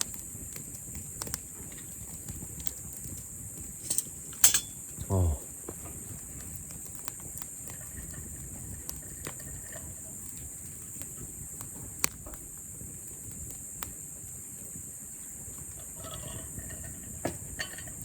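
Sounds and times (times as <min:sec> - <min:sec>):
steady high hiss: 0:00.0 - 0:06.7
campfire wood crackling: 0:00.0 - 0:18.0.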